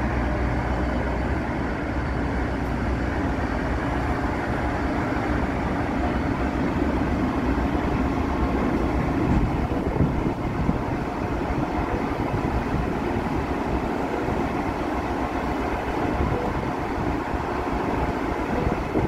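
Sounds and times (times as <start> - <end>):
locomotive rumbling as it slows: 0.0 - 19.0.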